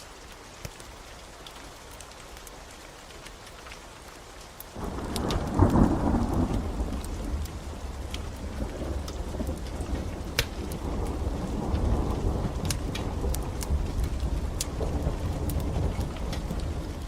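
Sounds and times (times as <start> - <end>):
steady rain: 0.0 - 17.0
wood fire crackling: 0.0 - 17.0
thunder rumbling: 4.8 - 17.0.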